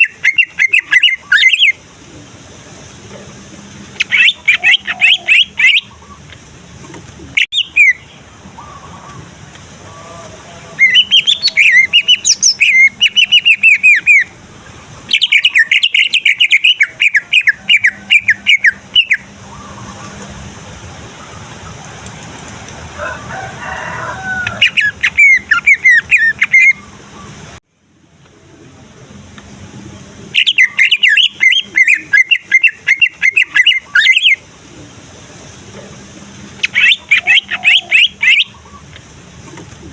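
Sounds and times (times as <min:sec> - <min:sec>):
bird singing chattering notes: 0:00.0 - 0:01.8, 0:04.0 - 0:06.3, 0:07.4 - 0:08.8, 0:10.8 - 0:14.4, 0:15.1 - 0:20.2, 0:24.6 - 0:27.4, 0:30.3 - 0:34.4, 0:36.6 - 0:39.0.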